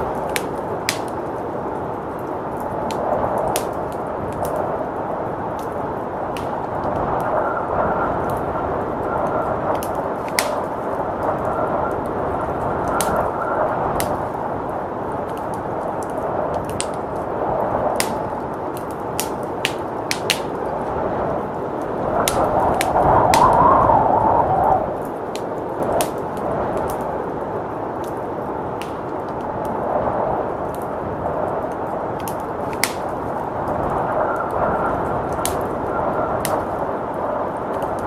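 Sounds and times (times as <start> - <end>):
storm wind: 0.0 - 38.0
wood fire crackling: 0.0 - 38.0.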